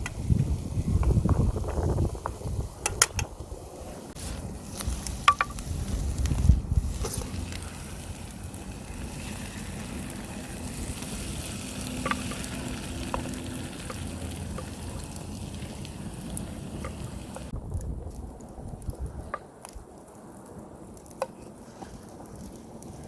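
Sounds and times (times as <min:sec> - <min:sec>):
food sizzling in a pan: 0:04.2 - 0:17.5.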